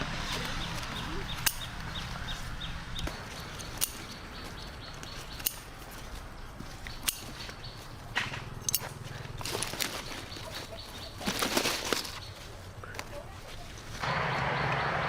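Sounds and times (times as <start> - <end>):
bird chirps: 0.3 - 5.8, 8.9 - 12.9
sharp clicks or snaps: 5.0 - 5.7.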